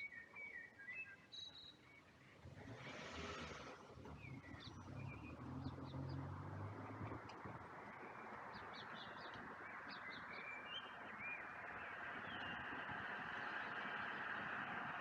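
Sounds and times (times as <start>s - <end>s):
small birds chirping: 4.1s - 6.4s, 7.8s - 14.9s.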